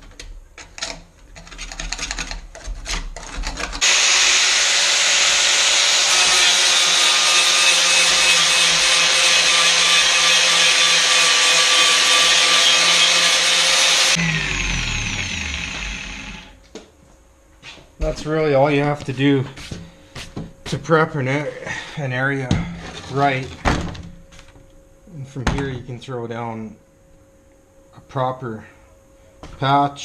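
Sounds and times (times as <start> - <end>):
power sander running: 3.8 - 16.6.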